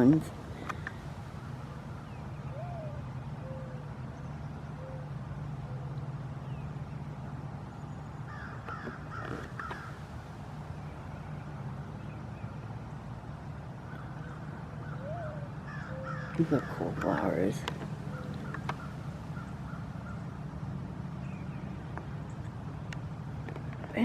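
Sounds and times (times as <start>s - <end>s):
steady low hum: 0.0s - 24.0s
crow cawing: 8.3s - 10.0s, 13.9s - 17.2s, 17.8s - 20.2s.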